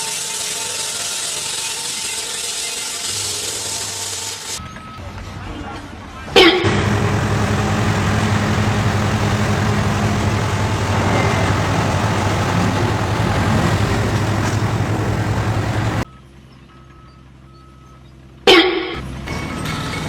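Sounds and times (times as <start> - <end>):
large engine running: 0.0 - 20.0
low hum: 6.6 - 16.1.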